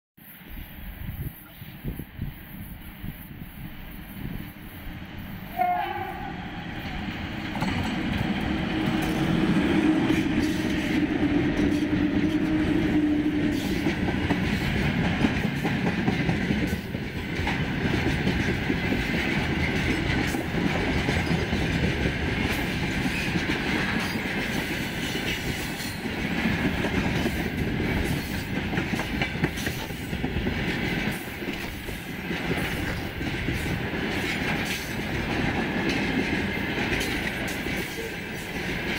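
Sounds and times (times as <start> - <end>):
electric locomotive train rumbling past: 0.2 - 38.9
wheels clattering over rail joints: 6.8 - 9.6.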